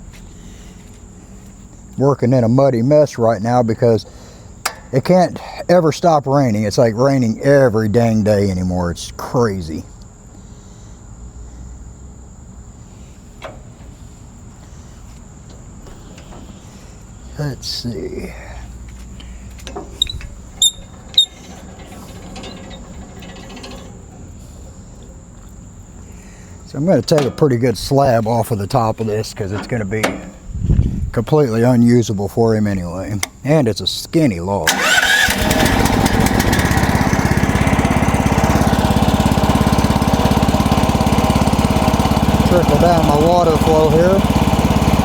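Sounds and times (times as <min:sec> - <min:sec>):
low steady hum: 0:00.0 - 0:34.7
gasoline engine running steadily: 0:04.1 - 0:05.5, 0:12.6 - 0:31.3, 0:34.6 - 0:45.0
metal clinking: 0:19.6 - 0:24.4.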